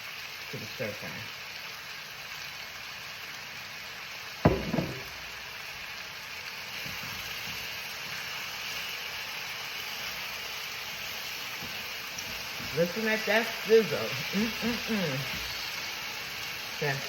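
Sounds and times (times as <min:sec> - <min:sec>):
vegetables sizzling in a pan: 0:00.0 - 0:17.0
sharp knocks: 0:04.5 - 0:05.4.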